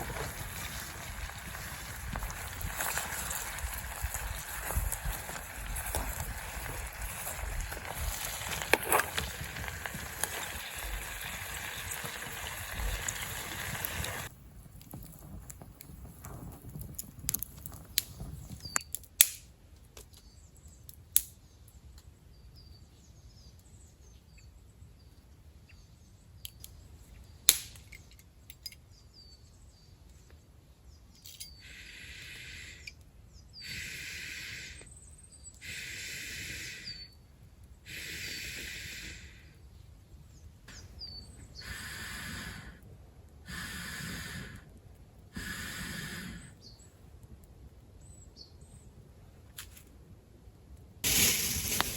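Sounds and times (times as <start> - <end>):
campfire crackling and popping: 0.0 - 19.5, 27.5 - 27.9, 51.0 - 51.9.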